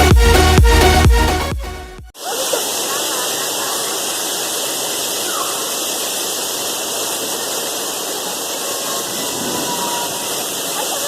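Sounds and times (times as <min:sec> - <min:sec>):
heavy rain and hail: 0:02.2 - 0:11.0.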